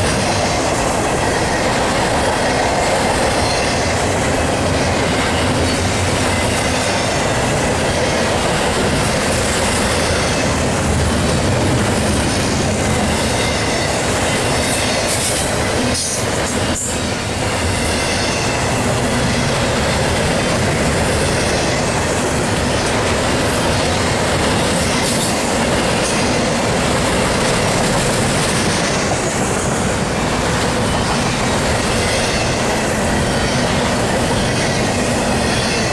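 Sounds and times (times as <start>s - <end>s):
train wheels rumbling on rail: 0.0s - 35.9s.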